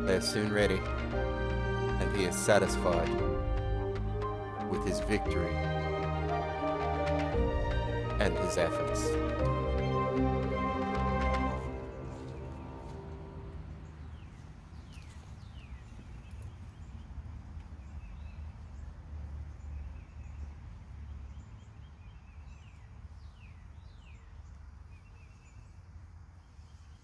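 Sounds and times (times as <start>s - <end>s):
steady low rumble: 0.0s - 14.9s.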